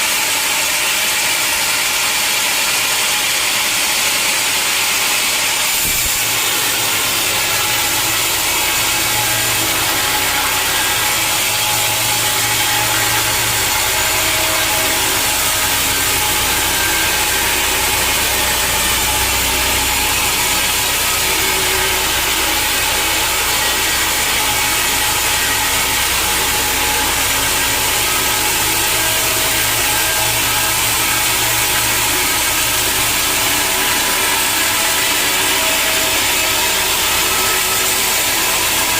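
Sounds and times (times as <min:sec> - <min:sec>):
saw cutting through log: 0:00.0 - 0:38.9
low motor hum: 0:05.7 - 0:38.9.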